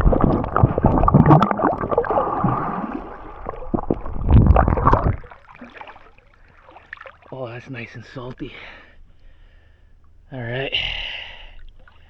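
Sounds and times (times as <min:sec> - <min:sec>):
small splashes and knocks: 0:00.0 - 0:07.4
seawater sloshing and gurgling: 0:00.0 - 0:08.2, 0:11.4 - 0:12.0.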